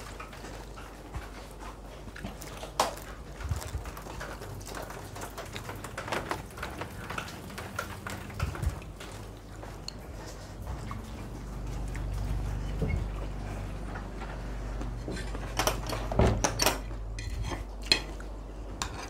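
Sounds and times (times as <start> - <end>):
light rain patter: 0.0 - 12.7
crunchy chewing: 0.0 - 15.5.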